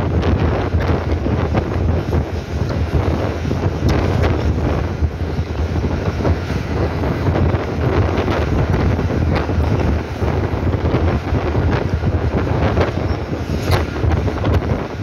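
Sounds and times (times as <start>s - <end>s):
train rumbling: 0.0s - 15.0s
wind buffeting microphone: 0.0s - 15.0s.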